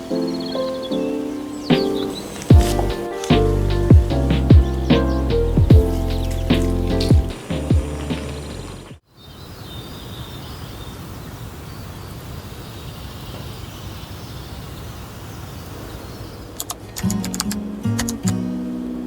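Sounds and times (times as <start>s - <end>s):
faint bird chirps: 0.0s - 7.4s
music: 0.0s - 9.0s, 17.1s - 19.0s
outdoor ambient hiss: 0.0s - 19.0s.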